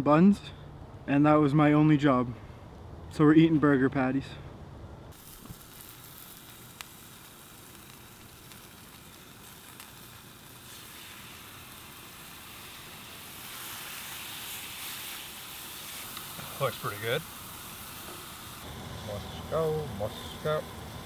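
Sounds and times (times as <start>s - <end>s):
burger patties sizzling: 5.1s - 21.0s.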